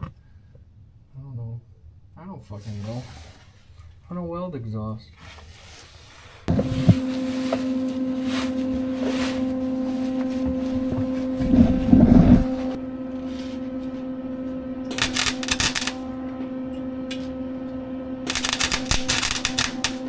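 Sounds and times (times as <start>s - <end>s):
wire-feed welder humming: 6.4s - 20.0s
welding arc crackling: 6.5s - 20.0s.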